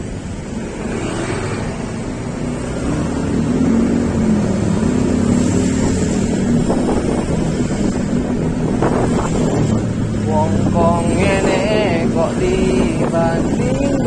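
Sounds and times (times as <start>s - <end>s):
vehicle engine humming: 0.0s - 14.0s
wind buffeting microphone: 3.1s - 14.0s.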